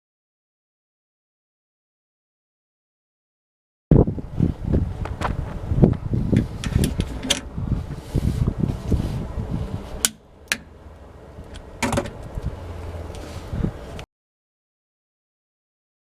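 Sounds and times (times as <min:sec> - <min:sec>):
steady low hum: 0:03.9 - 0:14.0.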